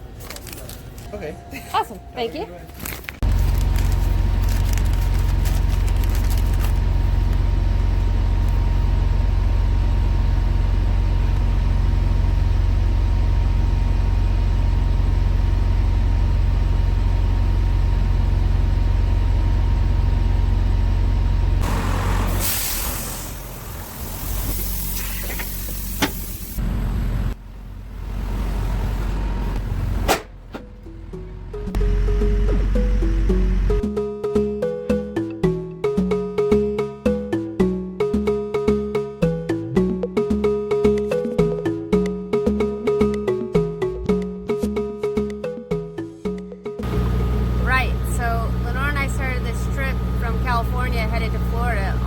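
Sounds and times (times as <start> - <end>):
diesel truck engine running: 0.0 - 33.8, 46.8 - 52.0
air brakes hissing: 21.6 - 26.6.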